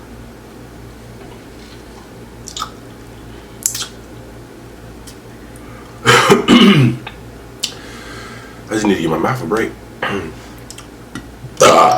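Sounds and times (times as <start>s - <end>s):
person chewing crunchy taco: 1.9s - 2.8s.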